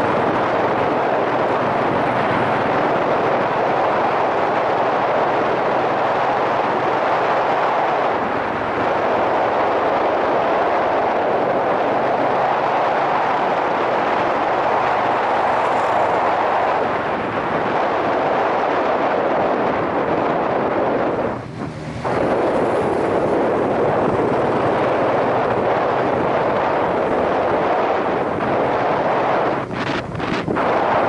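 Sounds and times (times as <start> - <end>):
wind rush over microphone: 0.0 - 31.0
motorcycle engine: 20.3 - 30.6.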